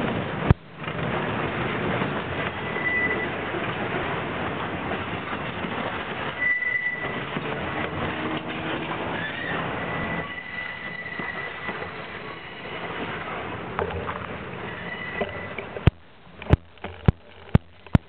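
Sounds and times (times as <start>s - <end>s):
freight train wheels rumbling: 0.0s - 18.0s
high wheel squeal: 2.5s - 3.4s, 6.2s - 13.4s, 14.6s - 15.8s.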